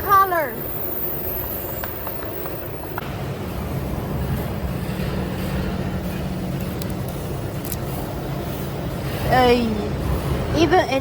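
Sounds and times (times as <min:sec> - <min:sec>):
furnace machinery rumbling: 0:02.7 - 0:11.0.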